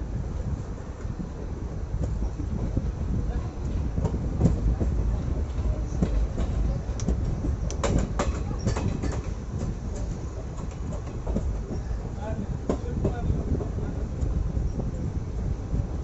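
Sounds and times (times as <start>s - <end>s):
train coach rumbling: 0.0s - 16.0s
wheels clicking over rail joints: 3.6s - 14.4s.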